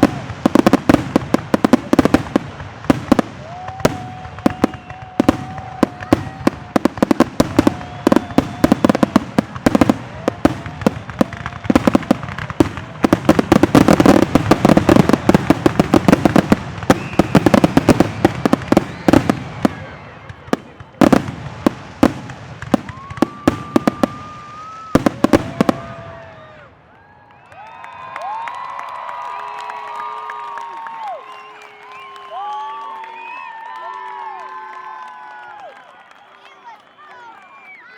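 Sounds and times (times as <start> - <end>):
whistling firework shells: 3.0 - 21.3, 22.0 - 25.9, 31.1 - 33.6.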